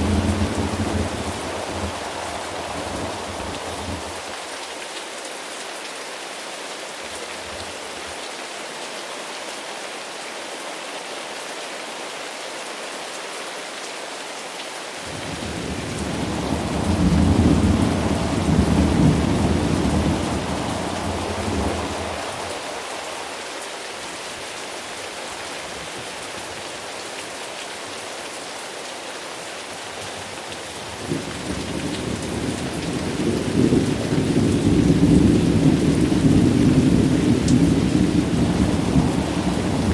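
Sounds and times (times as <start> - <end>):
thunder rumbling: 0.0 - 4.4, 15.1 - 23.4, 30.9 - 39.9
steady rain: 0.0 - 39.9.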